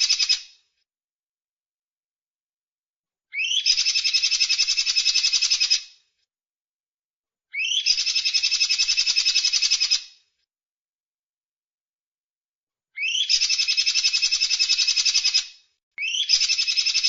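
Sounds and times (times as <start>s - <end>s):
songbird high trill: 3.4s - 5.6s, 7.6s - 10.0s, 13.0s - 15.3s, 16.0s - 17.0s.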